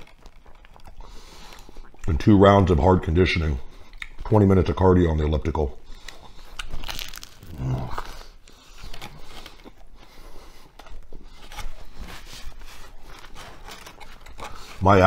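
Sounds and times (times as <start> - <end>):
person chewing: 0.0 - 4.3, 5.8 - 14.8
breaths through the nose: 0.9 - 2.0, 7.5 - 13.4
person humming: 7.4 - 8.0.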